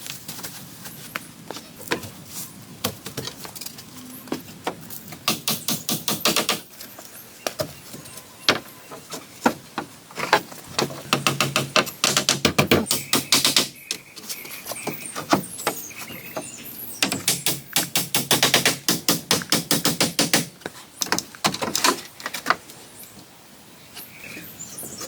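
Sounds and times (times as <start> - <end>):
hand tool knocking on wood: 10.8 - 13.7.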